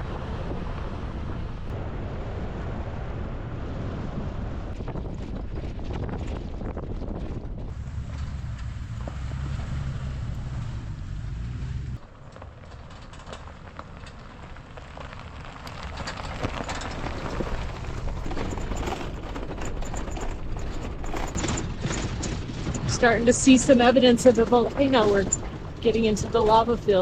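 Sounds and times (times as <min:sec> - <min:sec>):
wind rumble on microphone: 0:00.0 - 0:27.0
tyres crunching on loose stone: 0:12.0 - 0:23.0.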